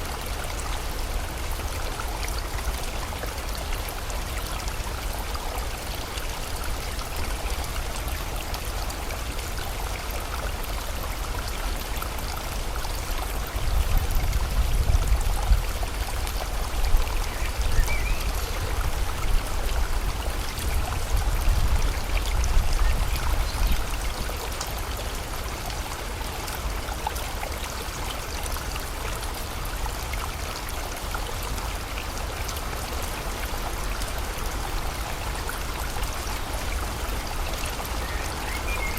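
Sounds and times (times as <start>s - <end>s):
rain: 0.0s - 38.9s
rushing river water: 0.0s - 38.9s.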